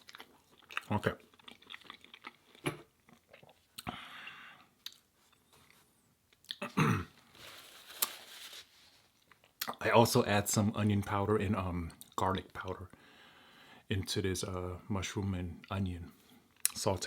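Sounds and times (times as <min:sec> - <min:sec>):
person chewing food: 0:00.0 - 0:04.0.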